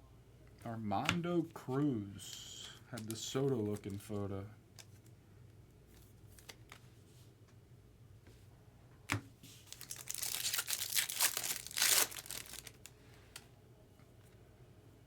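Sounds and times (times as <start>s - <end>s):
foil wrapper tearing and crinkling: 9.7s - 12.9s.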